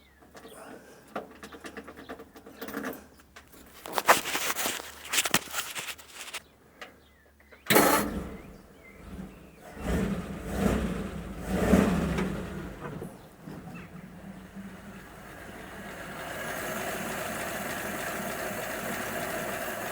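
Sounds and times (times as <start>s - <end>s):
engine cranking on starter: 7.7s - 19.9s
engine running: 7.7s - 19.9s.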